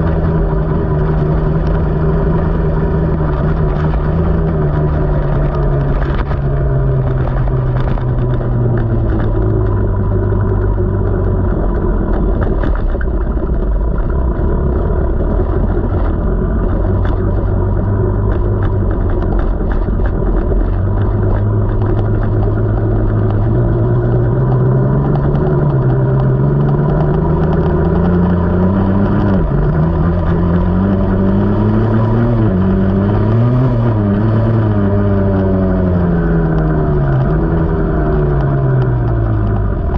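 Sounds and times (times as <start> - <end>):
dirt bike engine revving: 22.4 - 38.2.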